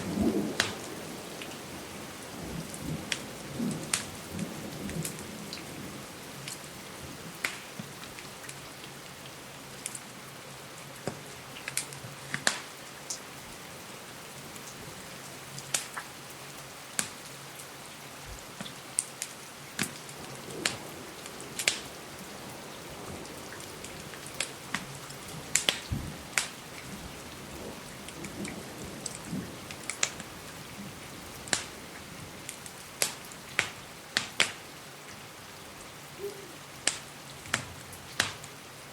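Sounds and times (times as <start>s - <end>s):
wood fire popping and crackling: 0.0s - 1.6s, 2.4s - 5.3s, 7.3s - 8.6s, 11.0s - 13.2s, 15.6s - 16.1s, 17.0s - 17.3s, 18.5s - 34.6s, 36.8s - 38.6s
steady rain hiss: 0.0s - 38.9s.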